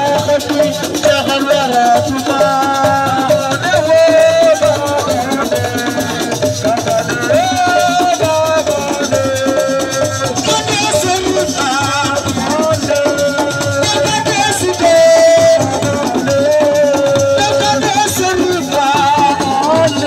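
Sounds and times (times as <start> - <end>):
hand percussion: 0.0 - 20.0
person singing: 0.0 - 20.0
shakers: 0.0 - 20.0.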